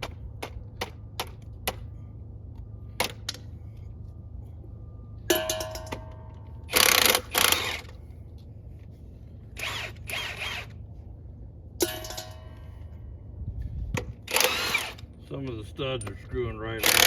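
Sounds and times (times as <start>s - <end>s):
impact wrench bursts: 6.6s - 8.0s, 9.6s - 10.8s, 14.2s - 15.1s, 16.8s - 17.0s.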